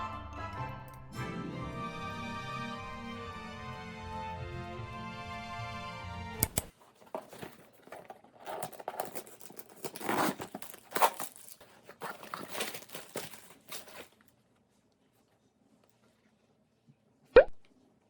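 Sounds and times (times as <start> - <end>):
packaging crinkling and tearing: 6.4 - 14.3.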